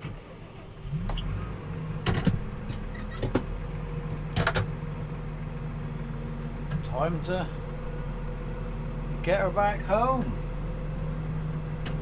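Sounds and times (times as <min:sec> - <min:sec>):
engine running: 0:00.0 - 0:12.0
sharp clunks and clicks: 0:02.0 - 0:03.5, 0:04.1 - 0:04.7.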